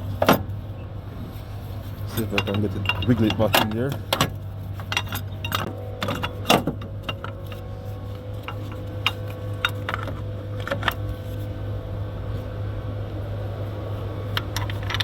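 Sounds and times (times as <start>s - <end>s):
steady low hum: 0.0s - 15.0s
metallic clinks and knocks: 2.0s - 11.0s.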